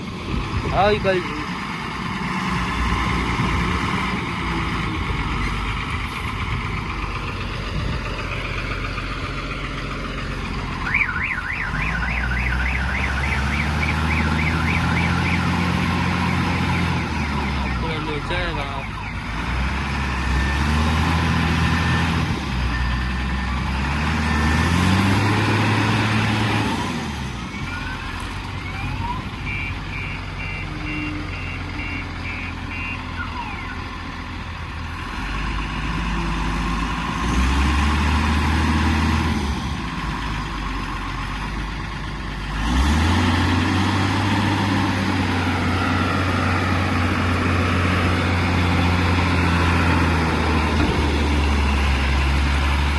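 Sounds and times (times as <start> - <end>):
heavy vehicle engine revving: 0.0 - 52.9
reversing beeps: 29.4 - 33.9.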